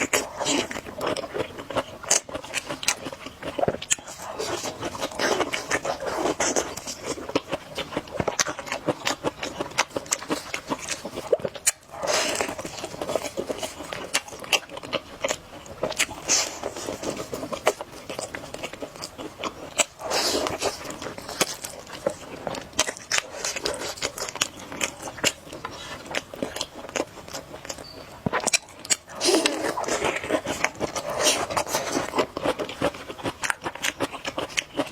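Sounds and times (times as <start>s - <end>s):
wet chewing with lip smacks: 0.0s - 34.9s
slurping noodles: 10.1s - 14.4s, 15.9s - 26.2s, 29.1s - 33.1s.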